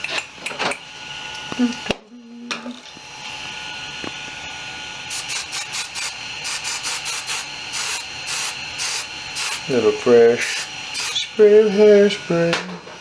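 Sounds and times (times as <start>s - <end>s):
aerosol spray hissing bursts: 5.1s - 9.8s, 10.4s - 11.3s.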